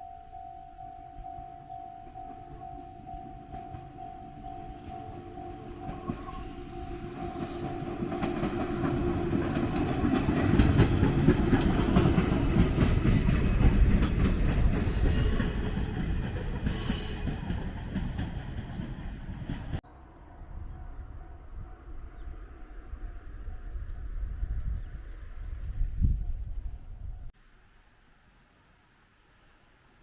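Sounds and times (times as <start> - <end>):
train rumble and wheel clatter: 1.1 - 19.8
brief high squeal: 16.8 - 17.4.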